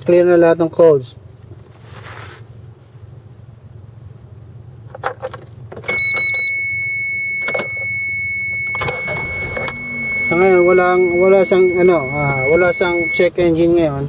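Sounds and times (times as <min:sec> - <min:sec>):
low steady hum: 0:02.5 - 0:14.0
high-pitched electronic tone: 0:05.9 - 0:13.3
keys jingling: 0:07.4 - 0:08.0.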